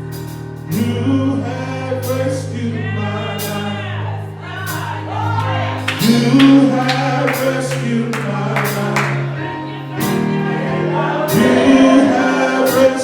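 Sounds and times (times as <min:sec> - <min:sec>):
gospel singing: 0:00.0 - 0:13.0
sustained held chords: 0:00.0 - 0:13.0
sharp percussion hits: 0:05.8 - 0:09.4.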